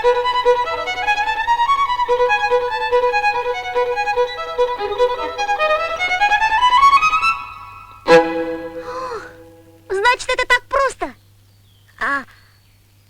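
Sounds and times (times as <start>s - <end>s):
violin playing lively melody: 0.0s - 9.8s.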